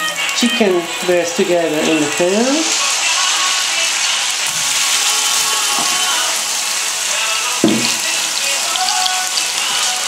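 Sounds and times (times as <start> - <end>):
chicken and onion sizzling in oil: 0.0 - 10.0
knock: 7.6 - 8.0.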